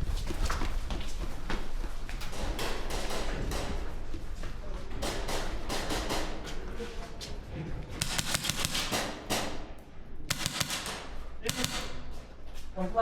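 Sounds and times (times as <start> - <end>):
airsoft guns firing: 5.0 - 6.6, 8.0 - 12.3.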